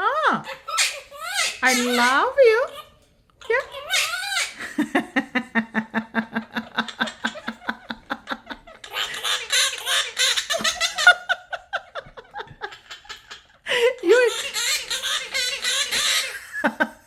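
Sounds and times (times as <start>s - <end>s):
parrot mimicking laughter: 0.3s - 17.0s
parrot harsh squawking: 0.4s - 4.7s, 8.8s - 11.2s, 14.0s - 16.6s.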